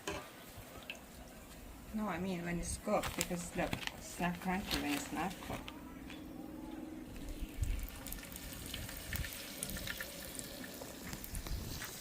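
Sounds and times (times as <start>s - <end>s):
fish sizzling in hot oil: 7.9s - 12.0s.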